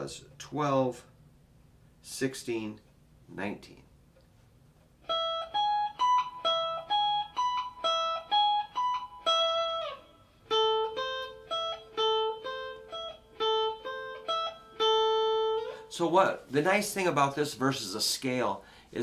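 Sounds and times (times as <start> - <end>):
guitar plucking arpeggios: 5.0 - 16.0.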